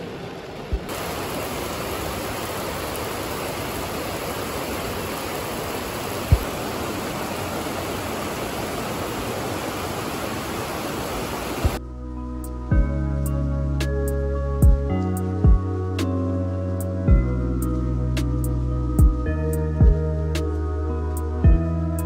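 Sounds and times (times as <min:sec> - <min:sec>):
heavy rain pouring: 0:00.0 - 0:11.8.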